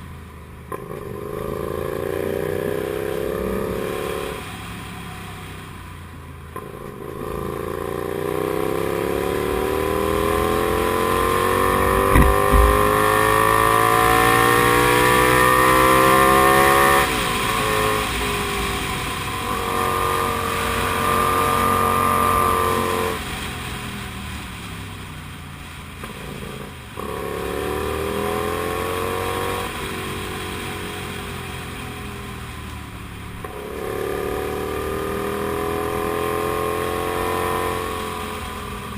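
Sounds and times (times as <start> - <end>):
motorcycle engine revving: 7.3 - 13.3
low thumps: 11.6 - 13.0.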